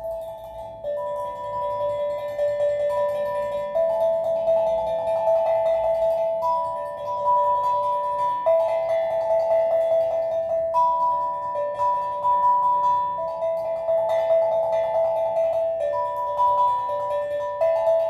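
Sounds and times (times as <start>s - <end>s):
steel drum melody: 0.0s - 18.0s.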